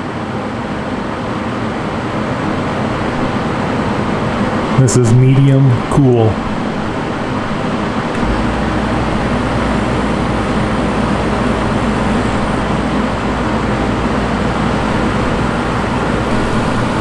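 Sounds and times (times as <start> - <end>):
air conditioner fan rushing: 0.0 - 17.0
constant low hum: 4.8 - 17.0.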